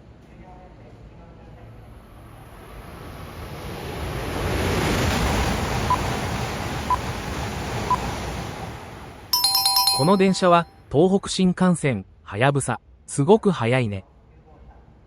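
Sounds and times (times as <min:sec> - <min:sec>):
train passing at speed: 0:00.0 - 0:09.3
short beeps: 0:09.4 - 0:10.6.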